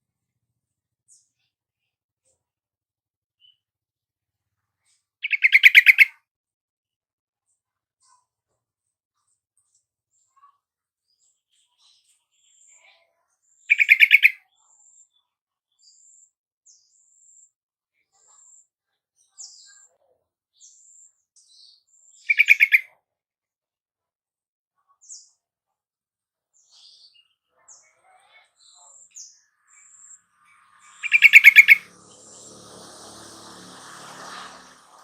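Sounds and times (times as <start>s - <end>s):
faint high chirps: 26.7s - 32.8s.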